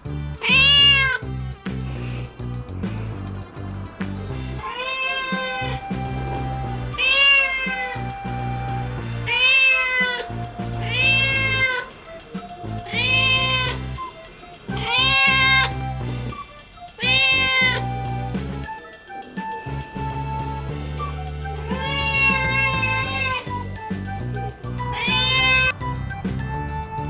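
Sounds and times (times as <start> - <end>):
background music with low notes: 0.0 - 27.0
cat meowing loudly: 0.4 - 1.2, 4.6 - 14.0, 14.7 - 15.9, 17.0 - 17.9, 21.6 - 23.8, 24.7 - 25.8.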